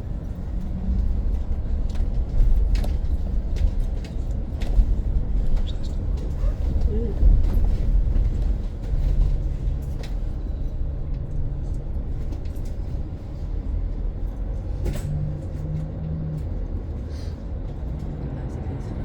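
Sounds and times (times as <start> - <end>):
bus road rumble: 0.0 - 19.0.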